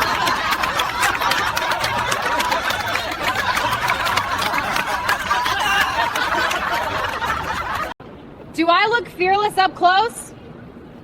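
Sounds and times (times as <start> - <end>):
crowd laughing: 0.0 - 8.0
scattered clapping: 0.0 - 8.0.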